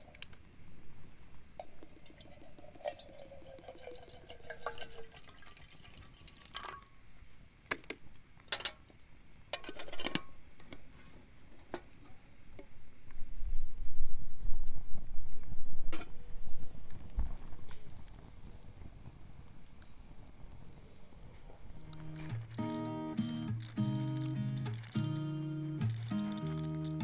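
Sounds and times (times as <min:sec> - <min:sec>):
liquid sound: 0:01.6 - 0:07.0, 0:21.4 - 0:27.0
camp utensils clinking: 0:08.5 - 0:08.8, 0:09.6 - 0:10.3, 0:21.9 - 0:27.0.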